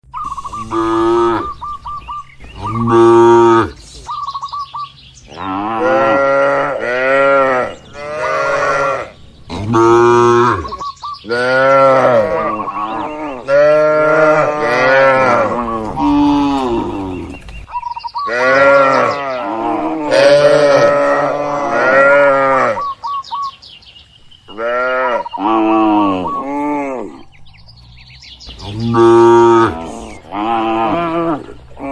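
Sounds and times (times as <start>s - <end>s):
cattle mooing: 0.5s - 1.6s, 2.6s - 3.8s, 5.3s - 17.4s, 18.3s - 22.9s, 28.6s - 31.9s.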